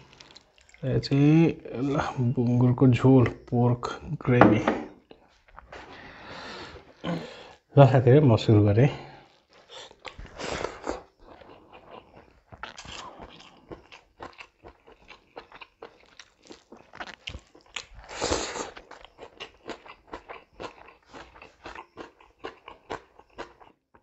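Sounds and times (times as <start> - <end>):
chewing with wet clicks: 0.0 - 2.5, 9.2 - 24.0.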